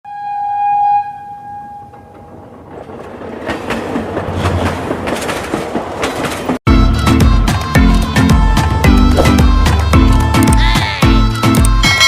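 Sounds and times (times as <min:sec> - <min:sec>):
train horn: 0:00.1 - 0:02.1
train rumbling and clattering: 0:01.6 - 0:06.6.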